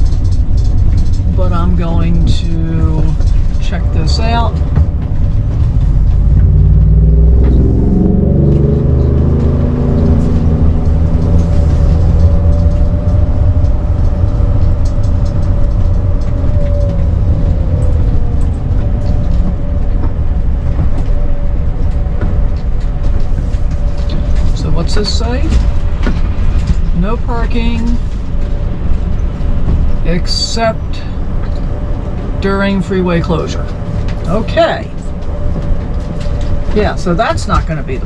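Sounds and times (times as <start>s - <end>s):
road rumble: 0.0s - 38.0s
vehicle engine accelerating: 0.0s - 38.0s.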